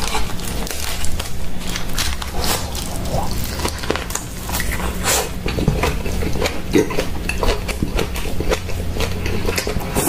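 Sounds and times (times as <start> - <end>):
wet chewing and slurping: 0.0 - 10.0.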